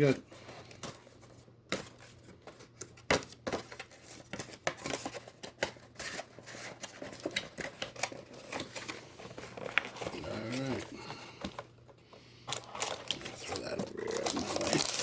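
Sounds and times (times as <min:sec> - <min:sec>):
cardboard and foil rustling: 0:00.0 - 0:11.7, 0:12.4 - 0:15.0.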